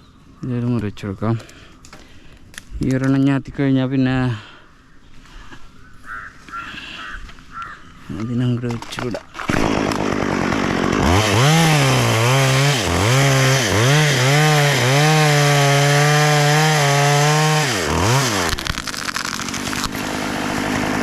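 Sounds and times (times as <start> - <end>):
chainsaw revving and cutting: 9.5 - 21.0.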